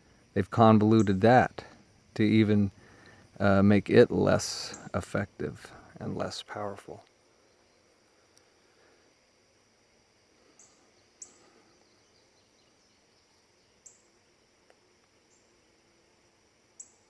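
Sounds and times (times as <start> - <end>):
faint high-pitched chirps: 10.4 - 16.0, 16.7 - 17.0.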